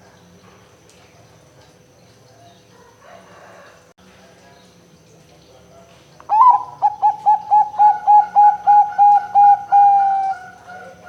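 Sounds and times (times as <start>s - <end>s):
dove cooing: 6.3s - 11.0s.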